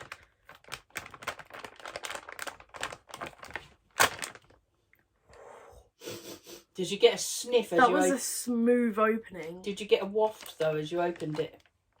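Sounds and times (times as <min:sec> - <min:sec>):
plastic snack bag crinkling: 0:00.0 - 0:04.7, 0:09.7 - 0:12.0.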